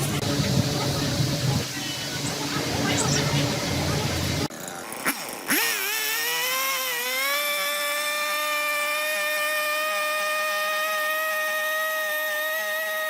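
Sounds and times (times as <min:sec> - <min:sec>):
electric power tool motor whine: 0:03.0 - 0:13.0.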